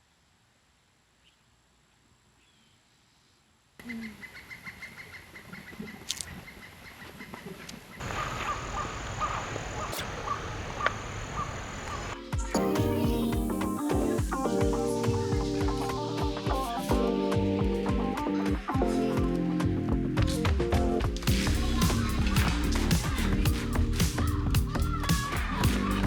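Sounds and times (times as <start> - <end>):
birds calling: 3.8 - 16.2, 21.3 - 26.0.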